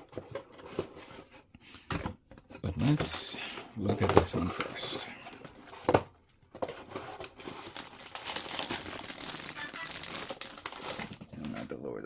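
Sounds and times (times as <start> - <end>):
plastic bags crinkling: 6.9 - 11.6.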